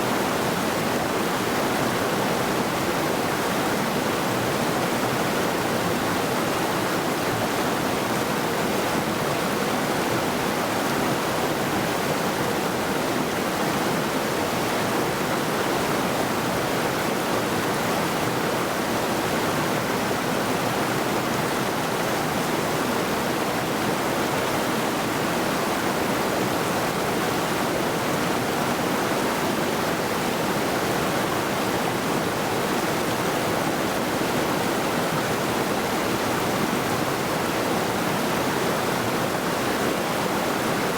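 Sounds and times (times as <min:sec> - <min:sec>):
river rushing over rocks: 0:00.0 - 0:40.9.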